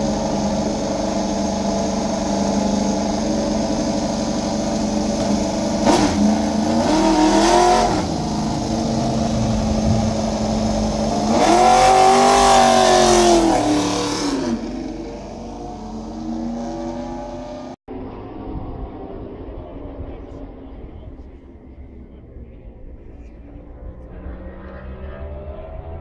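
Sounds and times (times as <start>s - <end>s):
racing motorcycles passing: 23.4s - 26.0s.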